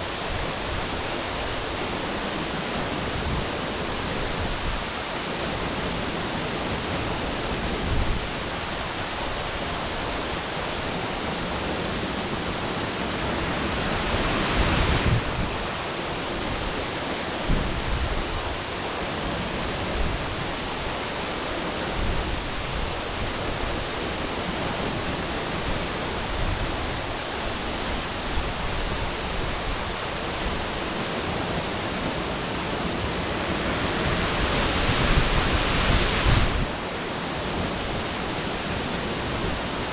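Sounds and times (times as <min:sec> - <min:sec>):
waterfall roaring: 0:09.8 - 0:17.5, 0:30.5 - 0:39.9.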